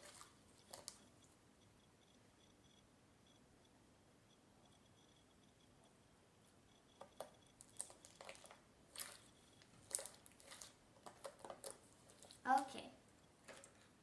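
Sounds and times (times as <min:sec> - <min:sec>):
slime squelching: 0:00.0 - 0:01.4, 0:07.0 - 0:14.0.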